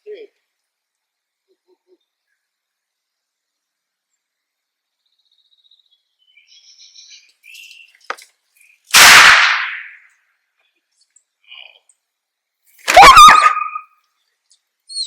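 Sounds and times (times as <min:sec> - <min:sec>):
faint bird chirps: 0:04.9 - 0:08.9, 0:10.6 - 0:12.0, 0:13.2 - 0:15.0
loud pistol bang: 0:08.9 - 0:10.0.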